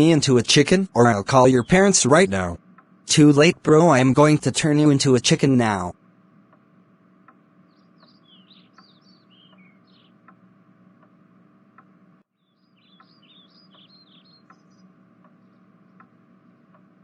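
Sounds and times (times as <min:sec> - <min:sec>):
steady low hum: 0:00.0 - 0:17.0
soft ticks: 0:02.7 - 0:03.0, 0:06.5 - 0:12.0, 0:13.0 - 0:17.0
faint bird chirping: 0:07.5 - 0:10.3, 0:12.3 - 0:16.8.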